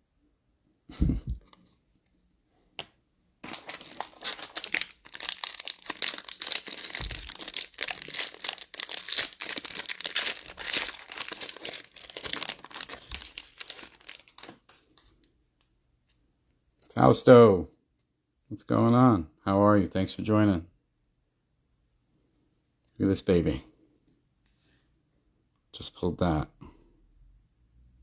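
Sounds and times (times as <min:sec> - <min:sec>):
wrapper crinkling: 0:03.4 - 0:15.0.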